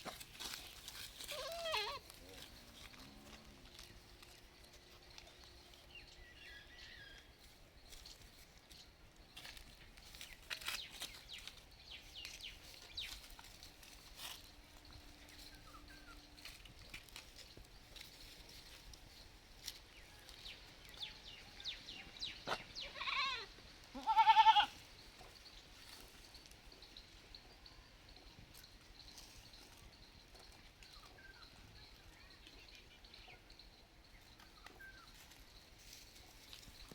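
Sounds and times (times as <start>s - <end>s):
baby goat bleating: 1.3s - 2.1s, 22.8s - 24.7s.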